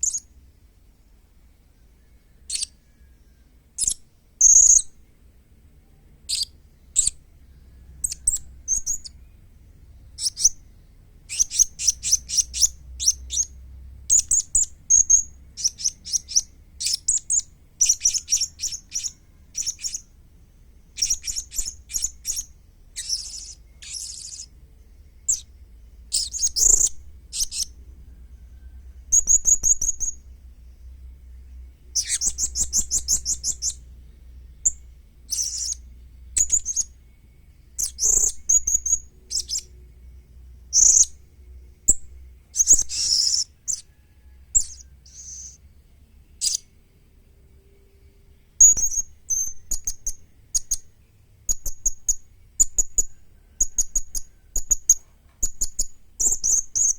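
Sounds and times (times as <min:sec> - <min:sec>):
faint low hum: 0:00.0 - 0:56.9
parrot chirping: 0:07.9 - 0:09.2, 0:10.1 - 0:20.2, 0:20.9 - 0:24.6, 0:25.2 - 0:30.3, 0:31.9 - 0:33.9, 0:34.6 - 0:36.9, 0:37.8 - 0:39.8, 0:40.7 - 0:41.2, 0:42.6 - 0:45.6, 0:46.4 - 0:46.7, 0:51.5 - 0:56.9.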